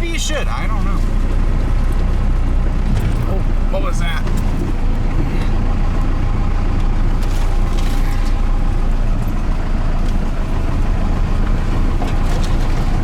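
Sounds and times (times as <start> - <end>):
pickup diesel engine droning: 0.0 - 13.0.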